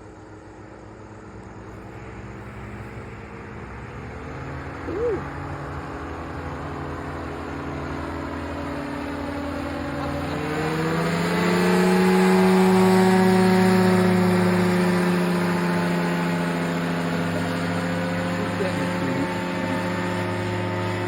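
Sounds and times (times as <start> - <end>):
aircraft engine and propeller: 0.0 - 21.0.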